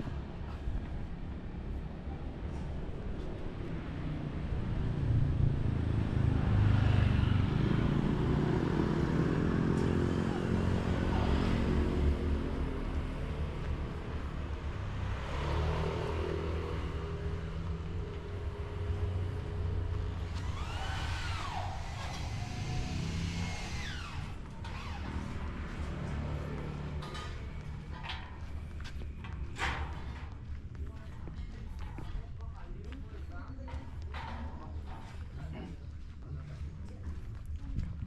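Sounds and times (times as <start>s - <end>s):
vehicles passing: 0.0s - 38.0s
short rising and falling squeal: 20.3s - 25.1s.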